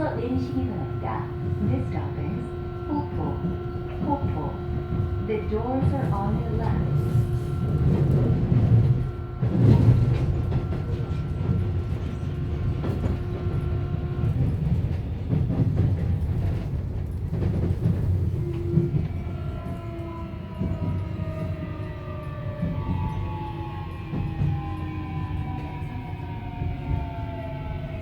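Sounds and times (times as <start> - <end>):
subway train rumble: 0.0 - 28.0.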